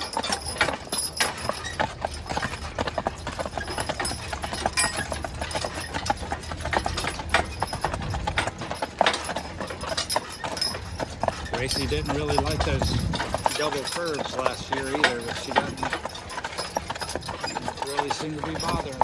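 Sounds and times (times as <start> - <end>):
horse hooves clip-clopping on pavement: 0.0 - 19.0.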